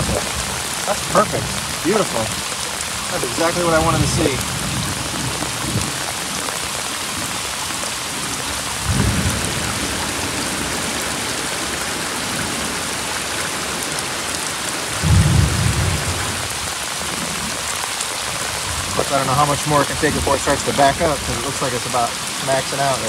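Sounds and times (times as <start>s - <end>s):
low thunder rumbles: 0.0s - 7.5s, 8.2s - 12.7s, 14.9s - 17.6s
raindrops clicking on microphone: 0.0s - 23.0s
torrential rain pouring: 0.0s - 23.0s.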